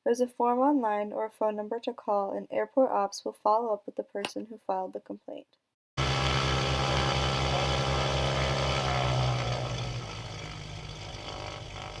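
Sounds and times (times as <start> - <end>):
propeller aircraft engine humming: 6.0 - 12.0.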